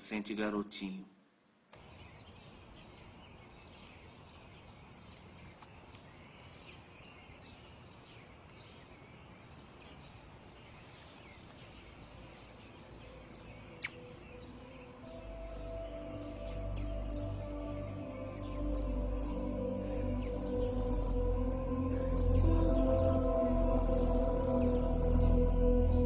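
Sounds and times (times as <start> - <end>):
background hiss: 0.0 - 26.0
small birds chirping: 1.8 - 26.0.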